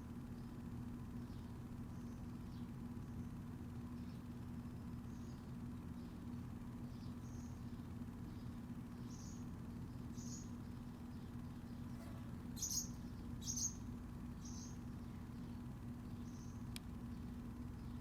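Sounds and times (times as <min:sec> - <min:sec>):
steady low hum: 0:00.0 - 0:18.0
small birds chirping: 0:00.3 - 0:18.0.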